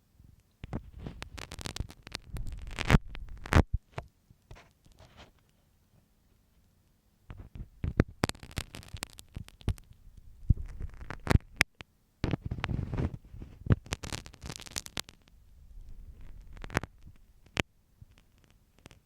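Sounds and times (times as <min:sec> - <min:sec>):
pin scratching inside ear: 0:00.6 - 0:03.7, 0:10.5 - 0:11.6, 0:12.2 - 0:15.3.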